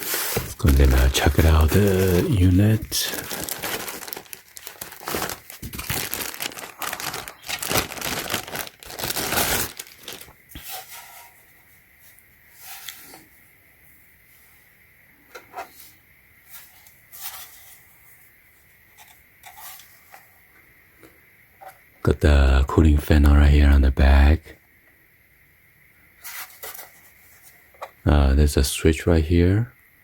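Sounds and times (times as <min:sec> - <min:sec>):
packaging crinkling and tearing: 0:00.0 - 0:10.4.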